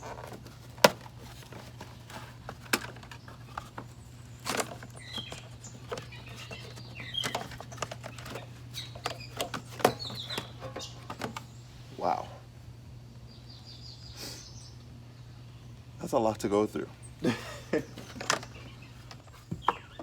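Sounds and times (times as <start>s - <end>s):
clicks and knocks of handled parts: 0.0s - 11.5s, 17.9s - 20.0s
steady low hum: 0.0s - 20.0s.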